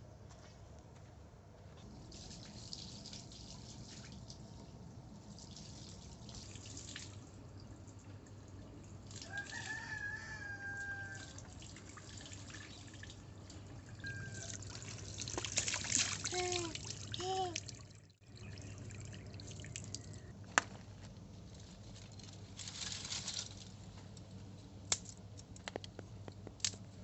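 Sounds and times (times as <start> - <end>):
rooster crowing: 9.2 - 11.4
rustling: 20.6 - 24.6.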